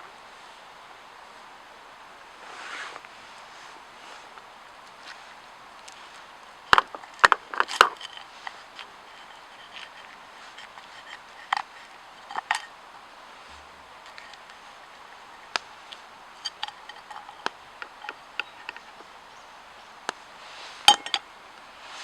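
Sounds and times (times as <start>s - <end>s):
sharp clicks and light clinks: 6.7s - 12.7s, 15.4s - 19.2s, 20.9s - 21.3s.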